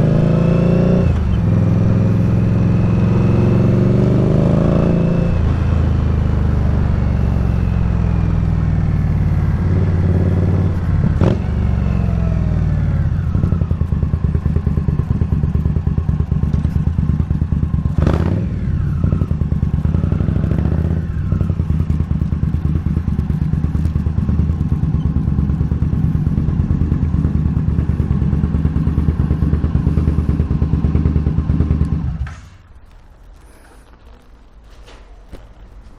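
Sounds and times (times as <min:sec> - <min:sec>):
motorcycle engine idling: 0:06.6 - 0:18.1, 0:18.7 - 0:32.3.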